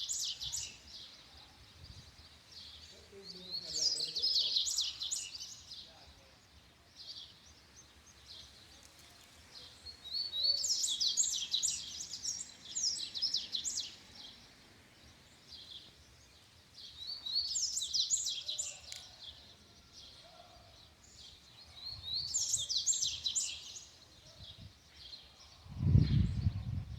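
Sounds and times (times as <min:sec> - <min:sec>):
bird singing twittering notes: 0:09.9 - 0:19.2.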